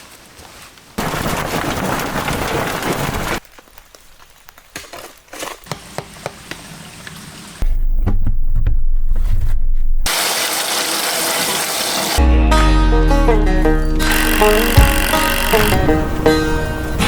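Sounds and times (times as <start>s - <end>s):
clicks and crackles: 1.4s - 5.8s.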